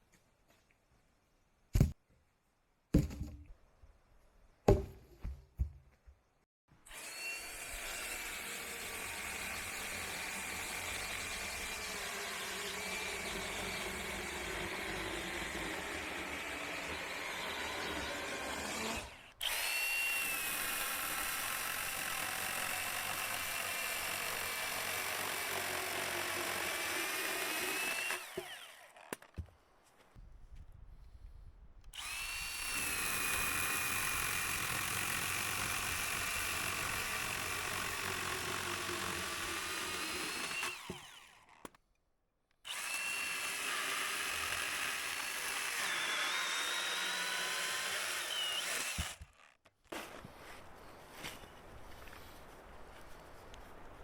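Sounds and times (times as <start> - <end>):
power tool motor whine: 32.0 - 35.7.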